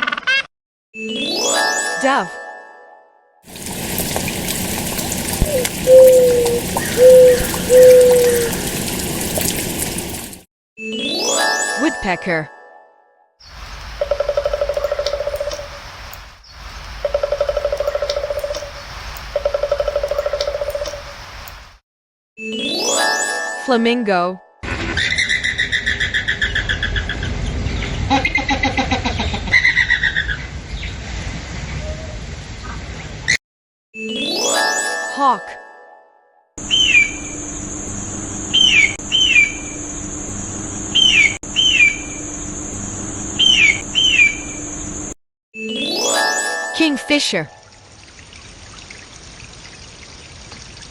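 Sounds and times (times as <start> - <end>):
steady outdoor hiss: 3.5 - 10.4, 13.5 - 21.8, 36.6 - 45.1
woodpecker drumming: 3.5 - 10.4, 14.0 - 15.7, 17.0 - 21.0
hawk calling: 3.6 - 10.2.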